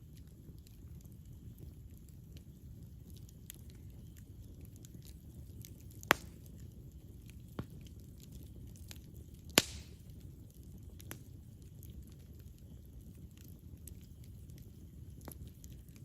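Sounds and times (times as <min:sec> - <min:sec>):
campfire crackling: 0:00.0 - 0:16.0
sharp loud pops of fire: 0:06.0 - 0:06.4, 0:09.6 - 0:10.1.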